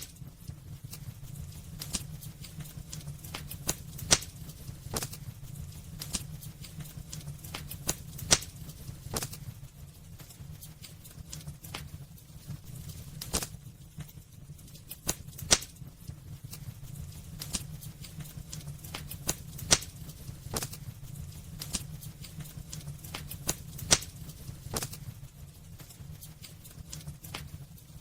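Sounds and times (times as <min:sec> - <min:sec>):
low rumble of flames: 0:00.0 - 0:28.0
wood fire crackling and popping: 0:00.0 - 0:28.0.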